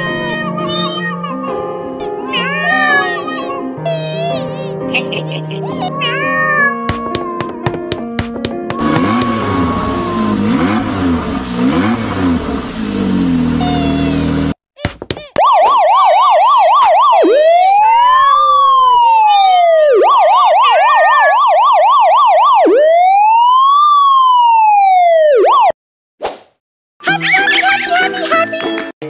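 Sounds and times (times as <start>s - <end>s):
electronic police siren: 15.4s - 25.8s.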